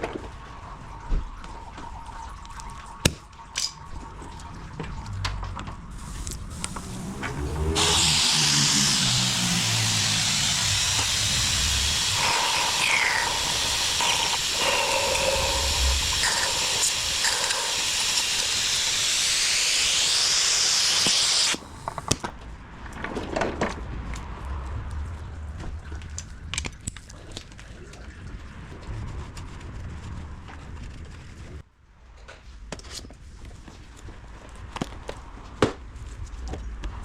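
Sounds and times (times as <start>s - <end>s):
loud steady hiss: 6.0s - 22.1s.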